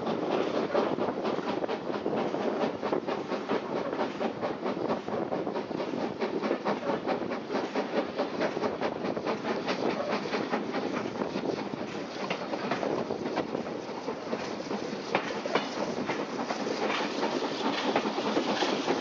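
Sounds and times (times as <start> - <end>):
railway carriage rumbling on track: 0.0 - 19.0
wheels clicking over rail joints: 6.4 - 13.6.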